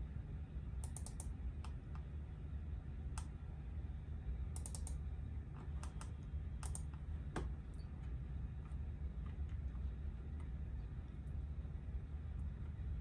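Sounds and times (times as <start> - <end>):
low steady rumble: 0.0 - 13.0
light clicks: 0.8 - 2.1, 4.6 - 5.0, 5.8 - 7.5.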